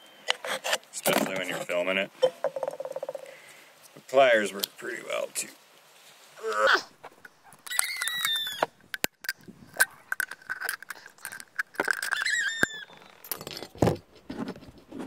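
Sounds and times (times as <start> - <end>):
hand tools clicking: 7.2 - 13.8.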